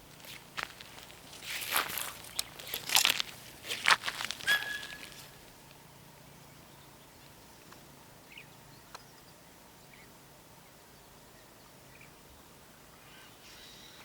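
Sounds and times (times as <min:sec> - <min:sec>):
footsteps crunching dry vegetation: 0:00.0 - 0:05.6
whistle-like call: 0:04.5 - 0:05.3.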